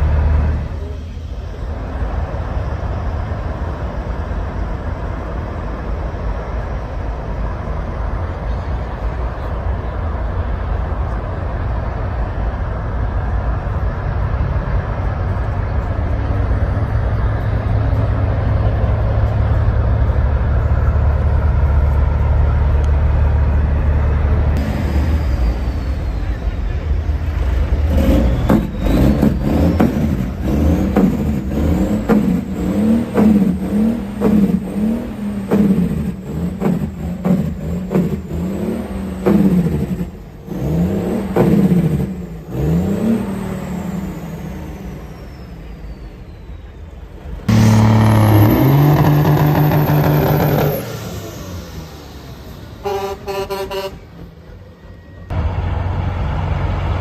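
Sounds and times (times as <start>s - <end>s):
truck engine revving: 0.0s - 5.1s, 13.2s - 46.2s, 47.2s - 57.0s
rapid horn toots: 47.5s - 48.7s, 52.8s - 54.1s
truck horn blast: 47.5s - 50.1s, 52.8s - 54.3s.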